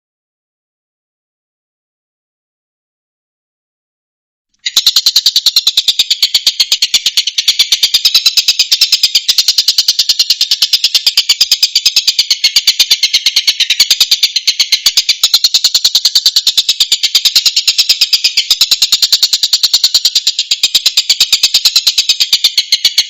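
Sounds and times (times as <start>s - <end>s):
kingfisher rattling call: 4.6s - 23.0s.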